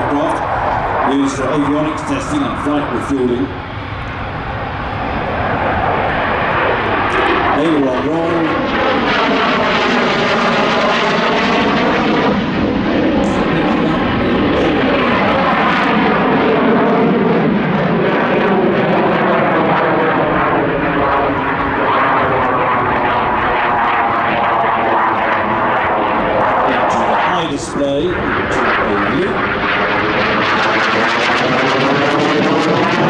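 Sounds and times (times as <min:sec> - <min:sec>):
jet engines roaring in flight: 0:00.0 - 0:33.0.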